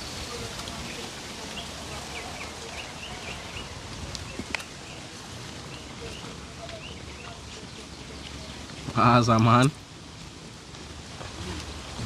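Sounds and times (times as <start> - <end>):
outdoor background hiss: 0.0 - 12.0
small birds chirping: 0.4 - 9.7.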